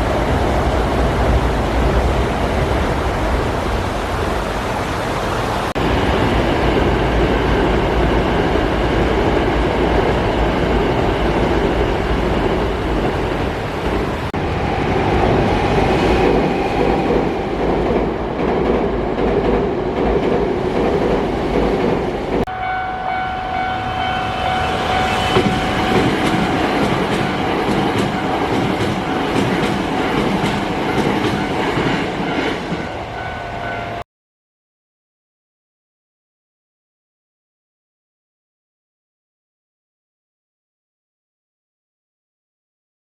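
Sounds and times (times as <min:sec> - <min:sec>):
train wheels rumbling on rails: 0:00.0 - 0:34.0
steady high tone: 0:22.5 - 0:34.0.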